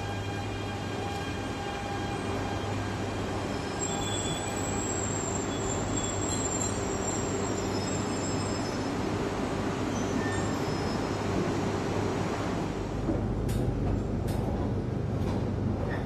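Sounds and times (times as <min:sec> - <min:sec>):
train humming: 0:00.0 - 0:06.0
high-pitched brake squeal: 0:03.5 - 0:08.9, 0:09.9 - 0:11.2.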